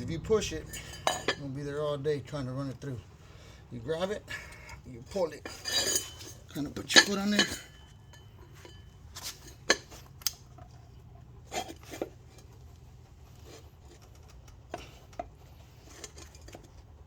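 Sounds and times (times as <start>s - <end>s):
pliers clinking on steel rim: 0.5s - 1.6s, 5.4s - 10.4s.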